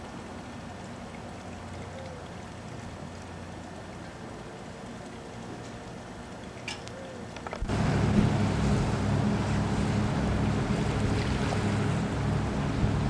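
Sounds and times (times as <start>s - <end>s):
water noise: 0.0s - 13.0s
wind buffeting microphone: 7.6s - 13.0s.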